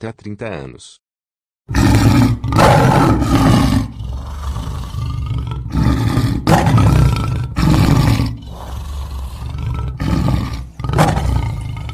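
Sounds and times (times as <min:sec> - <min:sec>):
lion grunting roars: 0:01.7 - 0:11.9
lion roaring: 0:01.7 - 0:11.9.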